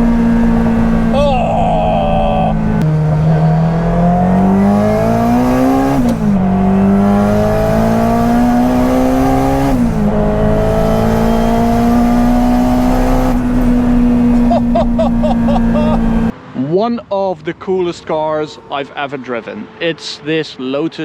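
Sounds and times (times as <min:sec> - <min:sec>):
car engine accelerating: 0:00.0 - 0:16.3.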